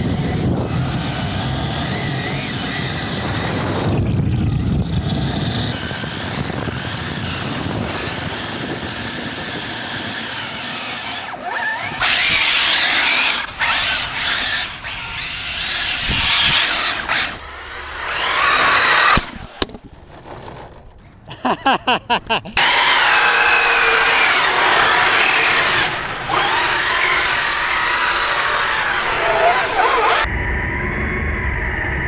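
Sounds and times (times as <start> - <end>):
electric motor whining: 0.0 - 19.5.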